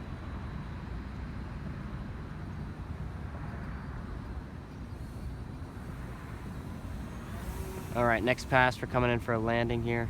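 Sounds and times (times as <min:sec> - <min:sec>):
distant electric motor whine: 0:03.8 - 0:10.0.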